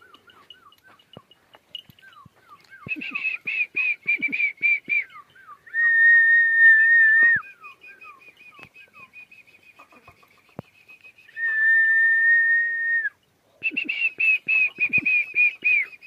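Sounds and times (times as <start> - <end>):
high-pitched bird calls: 0.0 - 5.8.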